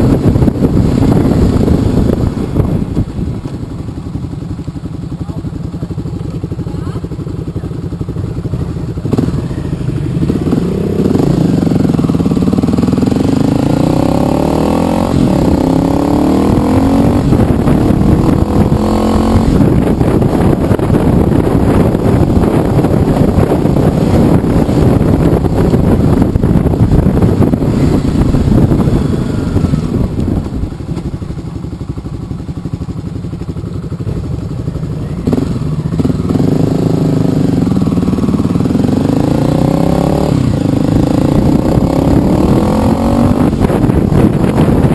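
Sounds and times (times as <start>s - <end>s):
motorcycle engine accelerating: 0.0s - 44.9s
wind and road noise: 0.0s - 44.9s.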